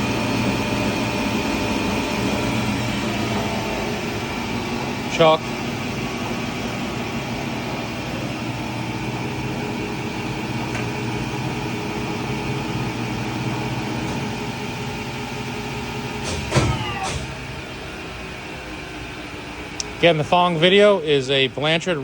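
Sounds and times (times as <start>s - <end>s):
brief loud sound: 16.3s - 17.5s.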